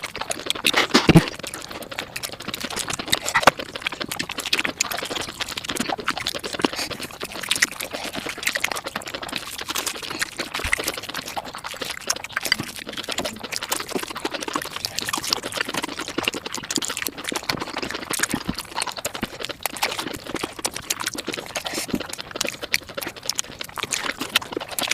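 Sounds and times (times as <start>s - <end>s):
mouth clicks: 0.0s - 24.9s
rapid wet chewing: 0.0s - 24.9s.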